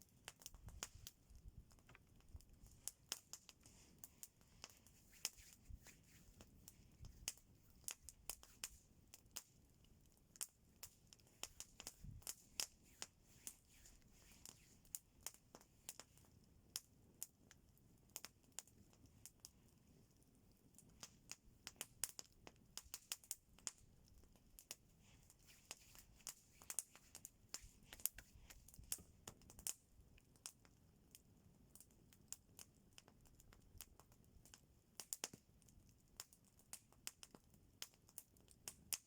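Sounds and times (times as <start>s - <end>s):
faint hiss: 0.0s - 9.9s, 10.5s - 16.3s, 20.8s - 30.0s
campfire wood crackling and popping: 0.0s - 39.0s.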